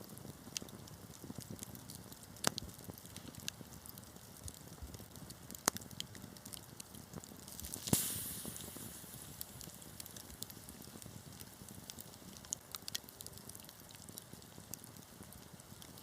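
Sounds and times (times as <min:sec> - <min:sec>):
wood fire crackling: 0:00.0 - 0:16.0
sharp fire pops: 0:00.1 - 0:16.0
short hiss: 0:07.6 - 0:09.6.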